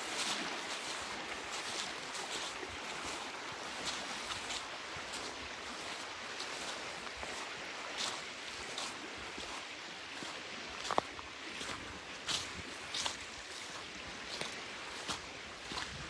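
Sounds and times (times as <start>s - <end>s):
footsteps crunching on frozen trail: 0.0s - 16.0s.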